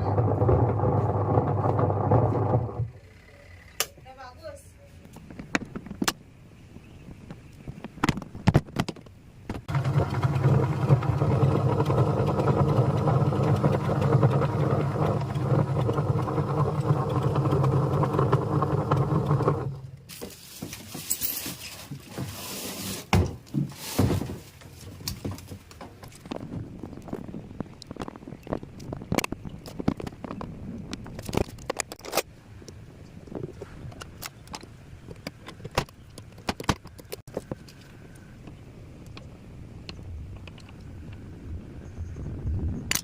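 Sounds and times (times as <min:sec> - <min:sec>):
washing machine motor humming: 0:00.0 - 0:03.0, 0:09.7 - 0:20.1
rustling with knocks: 0:13.4 - 0:32.2.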